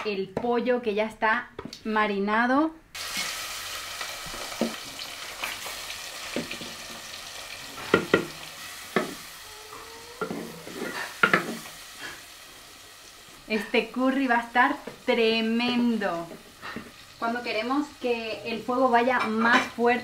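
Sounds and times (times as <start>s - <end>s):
chicken sizzling in oil: 3.0s - 18.7s.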